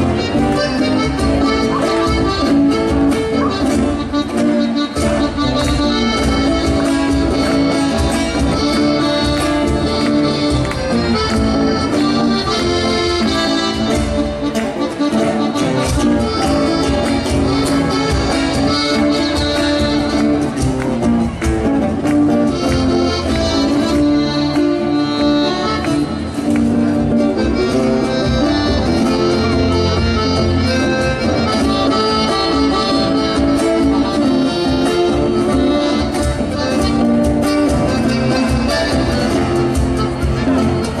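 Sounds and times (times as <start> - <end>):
accordion melody: 0.0 - 41.0
rhythmic accompaniment: 0.0 - 41.0.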